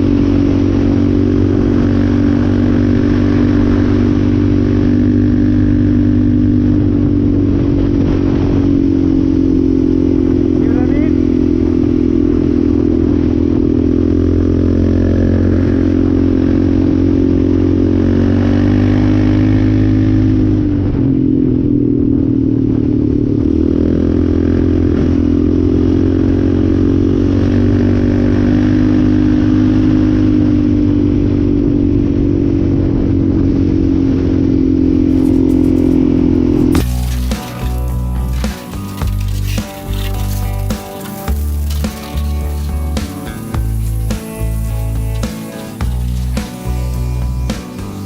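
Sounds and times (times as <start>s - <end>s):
quad engine running: 0.0s - 48.0s.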